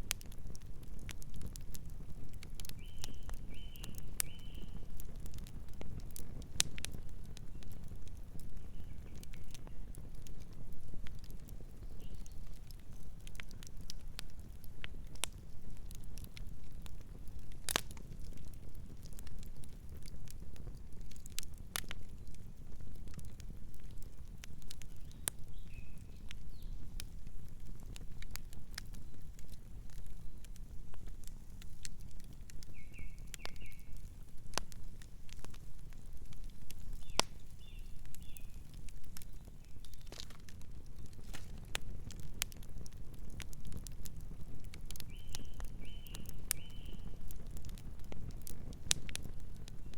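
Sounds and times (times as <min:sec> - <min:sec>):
campfire crackling: 0:00.0 - 0:49.9
soft bird chirps: 0:02.8 - 0:04.9, 0:08.6 - 0:09.9, 0:24.8 - 0:26.8, 0:32.6 - 0:34.0, 0:36.9 - 0:40.2, 0:45.1 - 0:47.2.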